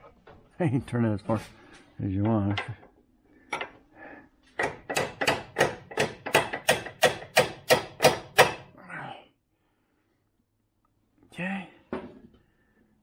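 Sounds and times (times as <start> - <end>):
hammer striking metal: 4.6 - 8.7.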